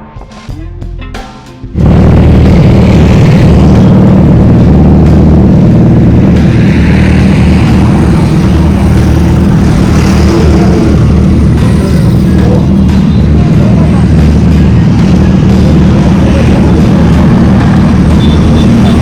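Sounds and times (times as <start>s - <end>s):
motorcycle engine at high revs: 1.8s - 19.0s.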